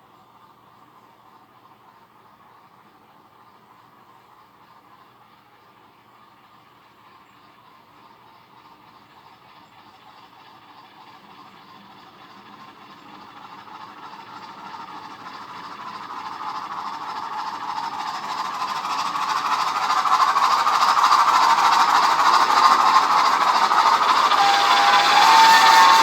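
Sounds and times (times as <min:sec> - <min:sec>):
model train running on track: 0:00.0 - 0:26.0
steady whine: 0:21.2 - 0:26.0.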